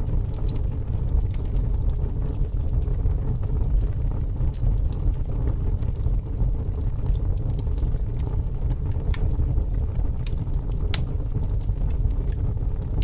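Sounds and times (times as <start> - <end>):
fire crackling and popping: 0.0 - 13.0
low rush of flame: 0.0 - 13.0.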